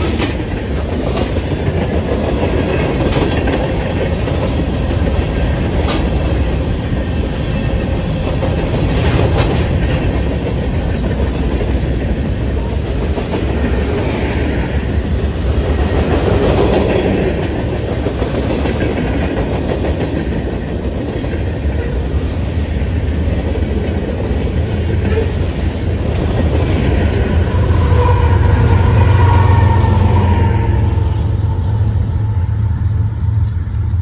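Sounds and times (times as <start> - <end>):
steel wheels clattering on rails: 0.0 - 29.4
diesel locomotive engine hum: 0.0 - 34.0
freight train rumble: 0.0 - 34.0.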